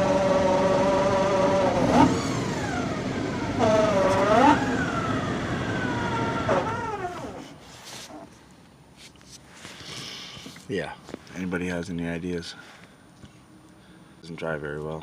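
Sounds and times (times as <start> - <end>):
loud siren-like whine from car: 0.0 - 7.5.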